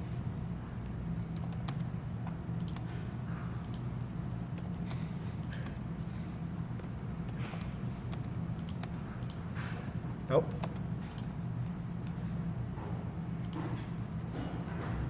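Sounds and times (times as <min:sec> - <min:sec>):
steady low hum: 0:00.0 - 0:15.0
computer mouse clicks: 0:02.6 - 0:02.9, 0:03.6 - 0:05.8, 0:06.7 - 0:09.9, 0:10.5 - 0:12.2
keyboard clicks: 0:02.6 - 0:02.9, 0:03.6 - 0:05.8, 0:10.5 - 0:12.2.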